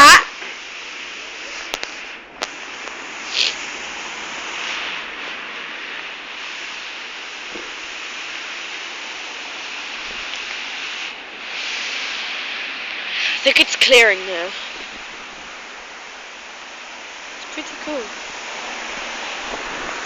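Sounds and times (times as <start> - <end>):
rain falling steadily: 0.0 - 20.0.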